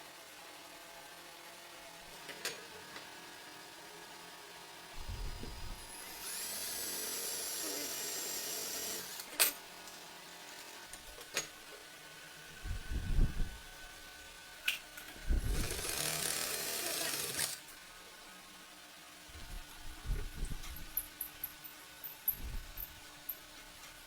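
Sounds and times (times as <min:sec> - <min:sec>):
small power tool motor whirring: 0:05.0 - 0:09.4, 0:15.2 - 0:17.7.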